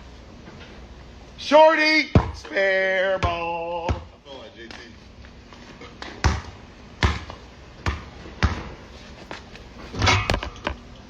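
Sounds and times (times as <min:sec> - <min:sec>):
basketball bouncing on hard court: 0:02.2 - 0:02.5, 0:03.2 - 0:04.1, 0:06.0 - 0:08.8.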